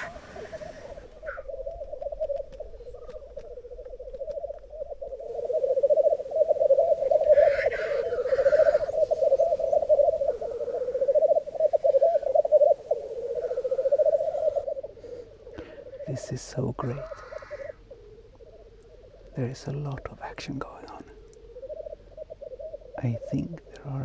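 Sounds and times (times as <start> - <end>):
grouse hissing call: 0.0 - 2.2, 4.8 - 24.0
black grouse bubbling: 0.0 - 24.0.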